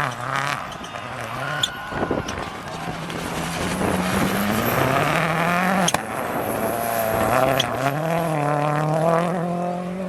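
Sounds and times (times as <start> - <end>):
rally car engine accelerating: 0.0 - 10.0
gear change crack: 0.1 - 7.9.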